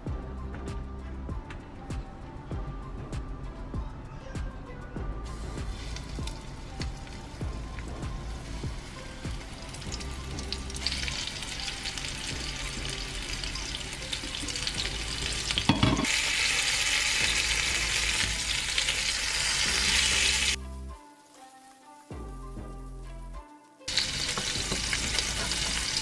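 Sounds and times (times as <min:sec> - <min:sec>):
food sizzling in hot oil: 0:05.3 - 0:26.0.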